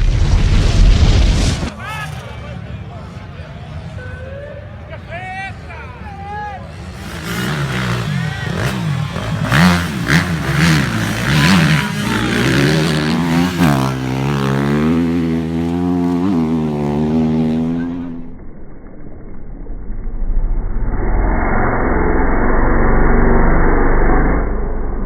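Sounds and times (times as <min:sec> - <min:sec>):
motorcycle engines revving: 0:05.9 - 0:18.4.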